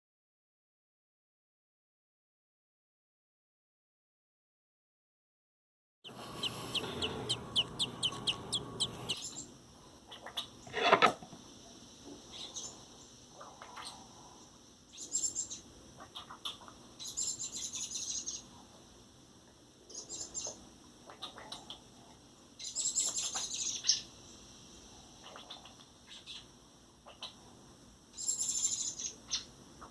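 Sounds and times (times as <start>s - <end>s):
bird nestling chirping: 6.1s - 9.5s.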